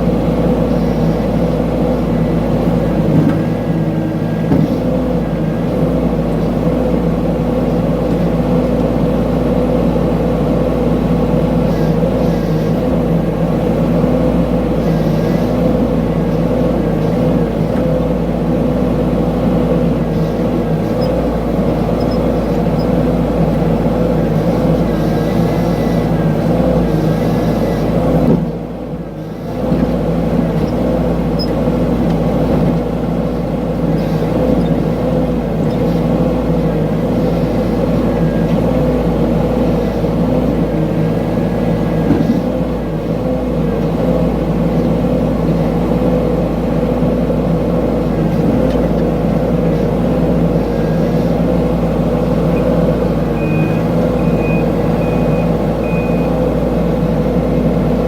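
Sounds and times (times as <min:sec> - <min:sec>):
excavator engine running: 0:00.0 - 0:58.0
short high beeps: 0:52.6 - 0:56.4.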